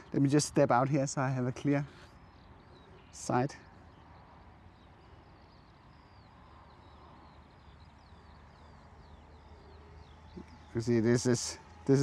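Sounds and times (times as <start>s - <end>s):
faint birdsong: 0.0s - 12.0s.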